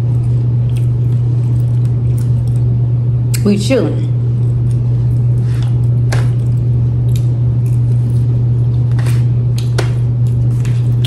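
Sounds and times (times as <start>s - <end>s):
wet chewing and biting: 0.0s - 2.8s, 4.4s - 11.0s
low electrical hum: 0.0s - 11.0s.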